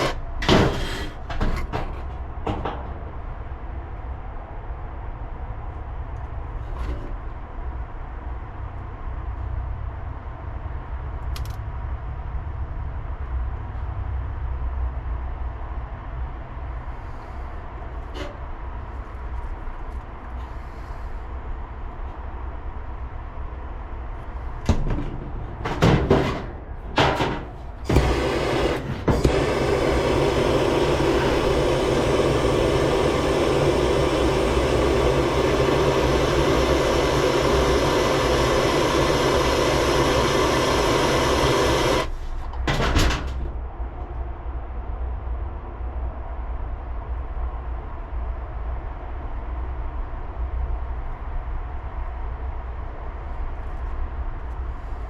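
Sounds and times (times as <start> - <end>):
torch flame hissing roar: 0.0 - 1.2, 27.2 - 42.3
low steady rumble: 26.5 - 42.5
short loud bursts: 27.8 - 42.2.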